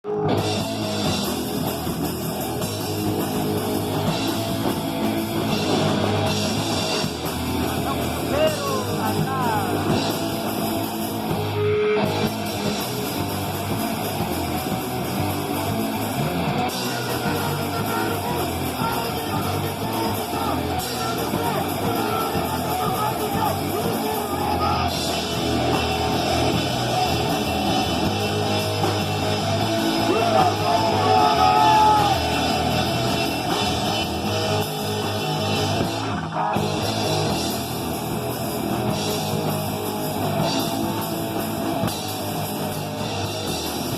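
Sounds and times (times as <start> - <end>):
guitar: 0.0 - 43.9
rock band playing: 0.0 - 43.9
drum kit: 0.1 - 43.9
person singing: 7.8 - 10.1, 16.7 - 25.1.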